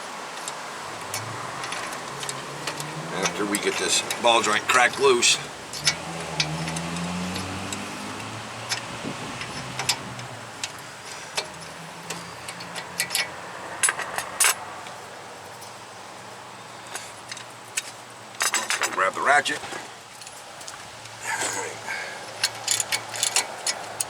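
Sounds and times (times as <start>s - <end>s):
metallic clicks of hand tools: 5.7s - 14.6s, 22.3s - 24.0s.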